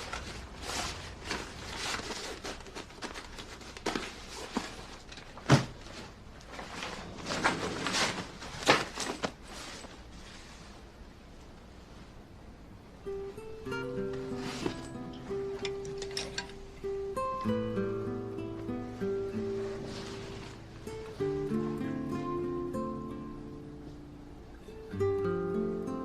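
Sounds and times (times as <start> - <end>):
rustling: 0.0 - 12.3, 13.1 - 22.3.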